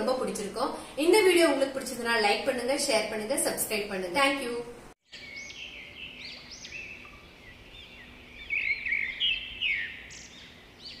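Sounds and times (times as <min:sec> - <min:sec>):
birds chirping: 0:05.1 - 0:11.0.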